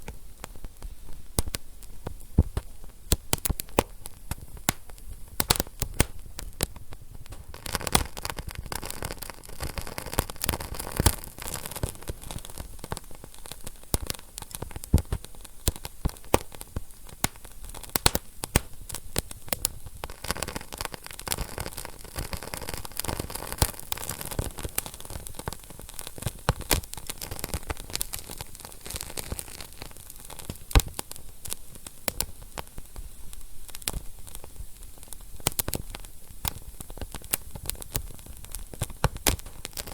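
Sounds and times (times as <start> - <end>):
hiss of flame: 0.0 - 39.9
wood fire crackling and popping: 0.0 - 39.9.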